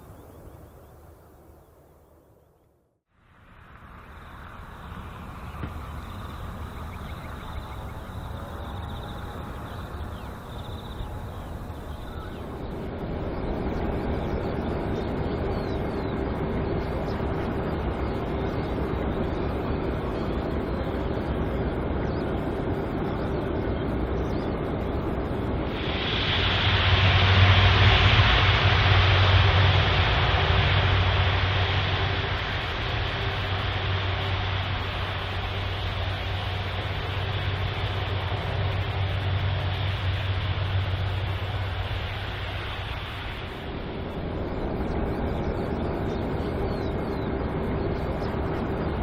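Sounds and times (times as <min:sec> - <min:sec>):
jet engine noise: 0:00.0 - 0:02.4, 0:03.2 - 0:49.0.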